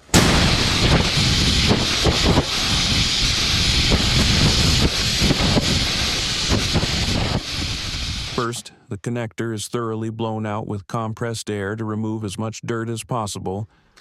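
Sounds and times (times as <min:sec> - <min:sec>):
compressed air hissing: 0:00.0 - 0:08.6.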